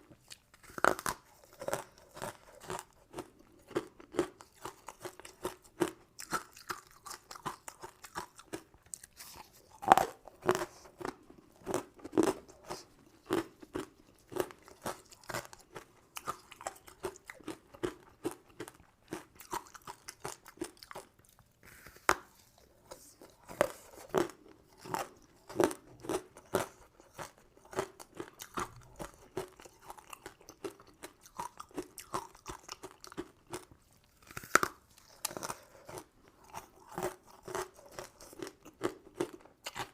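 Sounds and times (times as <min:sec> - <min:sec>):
person chewing crunchy candy: 0:00.0 - 0:39.9.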